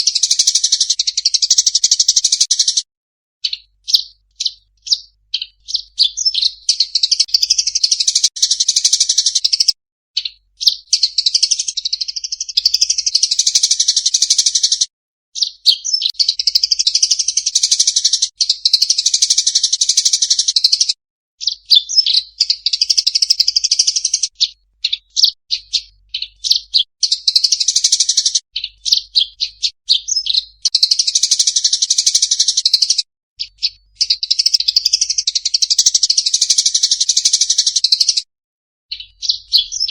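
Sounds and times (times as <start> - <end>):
songbird singing fast chatter: 0.0 - 38.3, 38.9 - 39.9.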